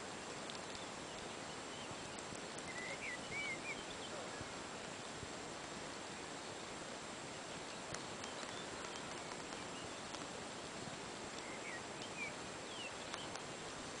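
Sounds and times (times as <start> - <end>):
small birds chirping: 0.0 - 14.0
steady hiss: 0.0 - 14.0
faint ticks: 0.3 - 1.4, 2.1 - 2.9, 7.7 - 12.2, 12.9 - 14.0.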